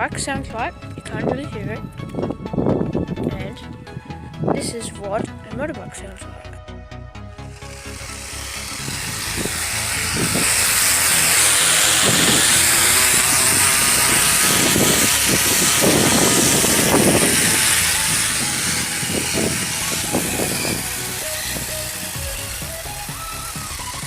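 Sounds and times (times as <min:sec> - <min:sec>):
motorbike engine running: 0:07.4 - 0:24.0.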